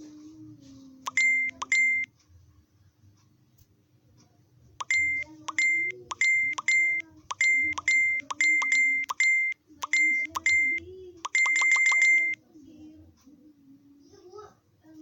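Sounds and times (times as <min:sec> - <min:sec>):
short high electronic beeps: 0:01.1 - 0:02.1, 0:04.8 - 0:12.4
long held beep: 0:04.8 - 0:12.4.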